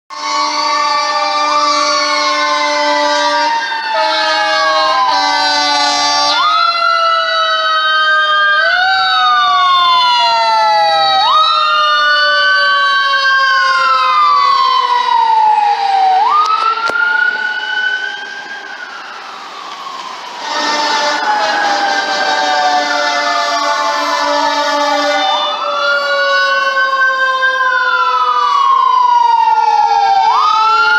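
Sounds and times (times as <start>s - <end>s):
fire engine air horn blasts: 0.1s - 6.6s, 20.3s - 26.8s
falling siren tone: 0.1s - 30.9s
siren wailing: 0.1s - 30.9s.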